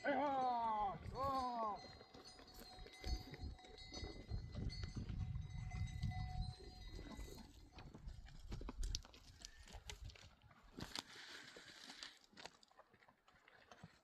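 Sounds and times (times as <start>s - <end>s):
goat neck bells ringing: 0.0s - 8.9s.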